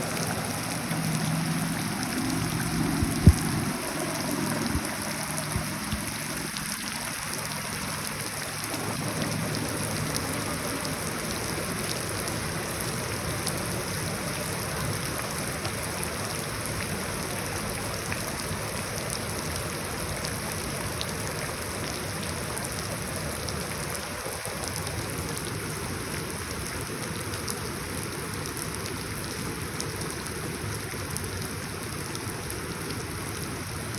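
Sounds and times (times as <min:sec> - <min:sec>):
low hum: 0:00.0 - 0:07.0
rain falling into puddles: 0:00.0 - 0:33.9.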